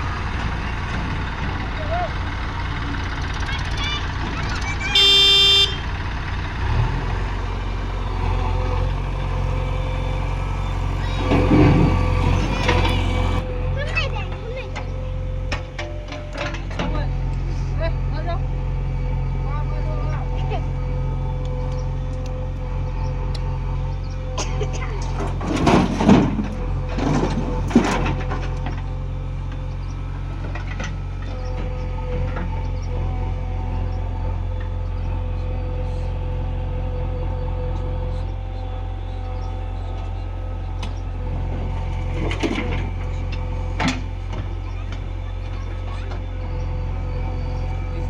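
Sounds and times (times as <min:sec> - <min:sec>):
diesel engine rumbling: 0:00.0 - 0:48.0
bursts of rough noise: 0:04.6 - 0:13.5
vehicle horn blast: 0:04.8 - 0:06.0.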